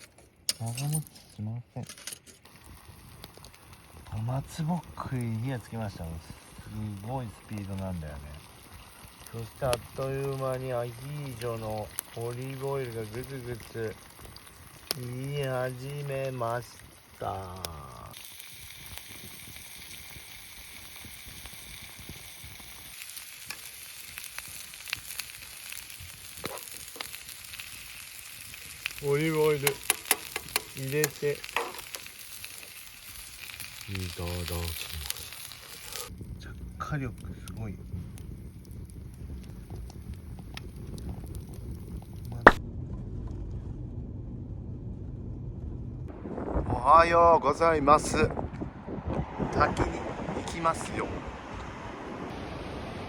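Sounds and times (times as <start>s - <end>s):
oil bubbling and sizzling: 2.4s - 42.6s
fire popping: 2.4s - 53.0s
loud sharp pop: 42.3s - 42.6s.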